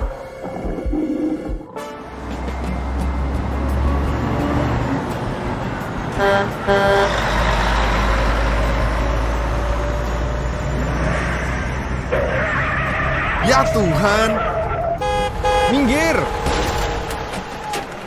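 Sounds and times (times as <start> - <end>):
truck engine running: 2.1 - 13.8
horn honking: 6.1 - 7.4, 12.1 - 17.9.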